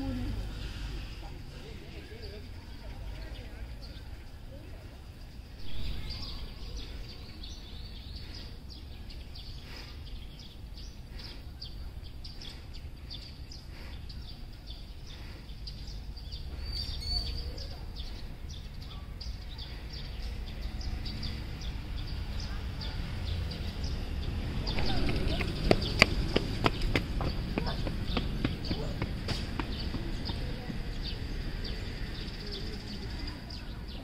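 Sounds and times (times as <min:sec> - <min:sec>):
small birds chirping: 0:00.0 - 0:34.0
low outdoor rumble: 0:17.4 - 0:34.0.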